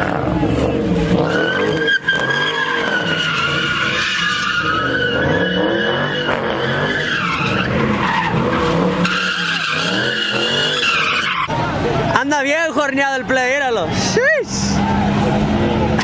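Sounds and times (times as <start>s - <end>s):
tyres squealing: 0.0s - 12.0s
car engine revving: 0.0s - 12.2s, 13.8s - 16.0s.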